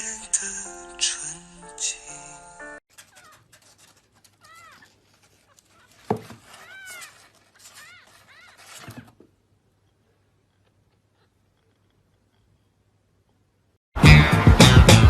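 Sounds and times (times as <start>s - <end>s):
cat mewing: 3.0s - 9.1s.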